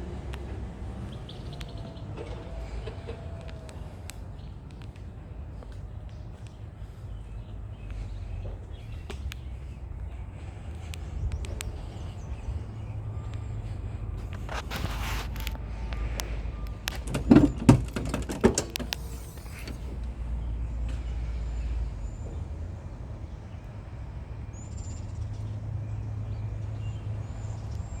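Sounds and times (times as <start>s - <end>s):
pickup engine idling: 0.0s - 21.0s
sharp knocks and clicks: 16.7s - 20.0s.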